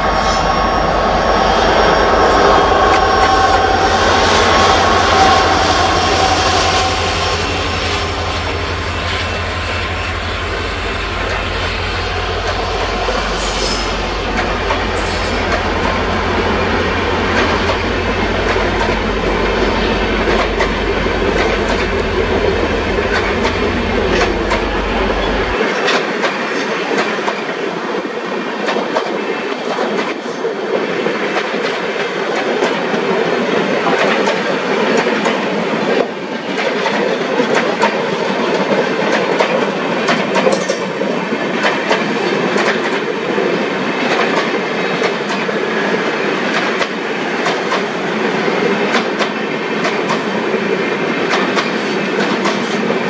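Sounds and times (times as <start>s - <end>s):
low hum: 0.0s - 14.8s
rushing rail noise: 0.0s - 53.0s
train wheels clicking over rail joints: 4.4s - 27.6s, 33.8s - 53.0s.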